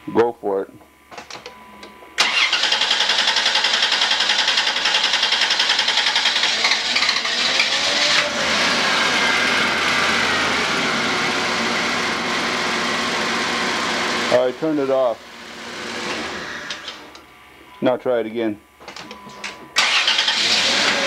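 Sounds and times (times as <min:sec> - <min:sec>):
car engine cranking: 0:02.2 - 0:10.2, 0:19.8 - 0:21.0.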